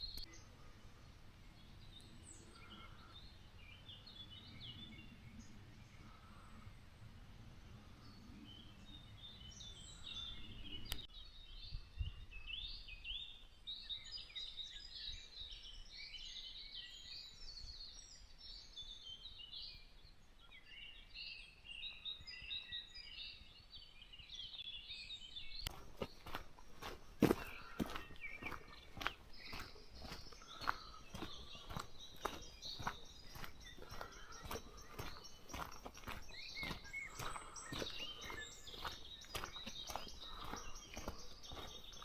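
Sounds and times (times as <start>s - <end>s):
songbirds chirping and trilling: 0.0s - 42.0s
footsteps: 25.7s - 42.0s.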